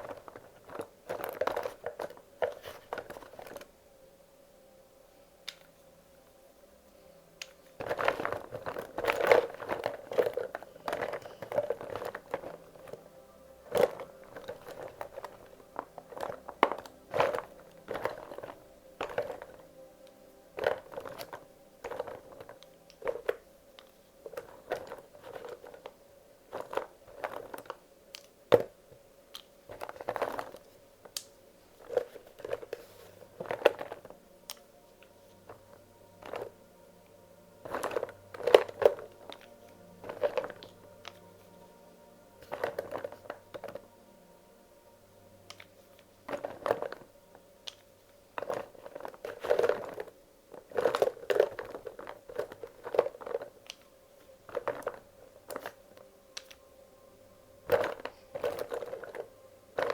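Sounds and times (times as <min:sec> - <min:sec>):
wax crayons clicking and clattering: 0:00.0 - 0:03.7, 0:07.4 - 0:44.1, 0:45.4 - 0:56.7, 0:57.6 - 0:59.9.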